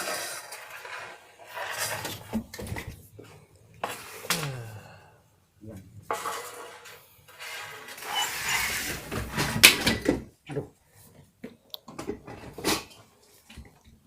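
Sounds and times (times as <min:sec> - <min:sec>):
rustling scrapes: 0:00.0 - 0:04.3, 0:06.1 - 0:09.6.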